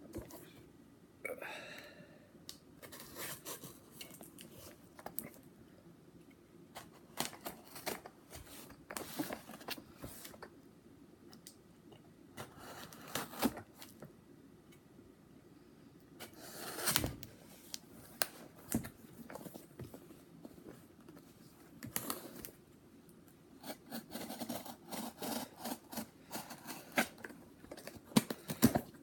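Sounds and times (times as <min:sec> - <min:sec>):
knife cutting cardboard box: 0:16.3 - 0:17.2, 0:23.6 - 0:27.2.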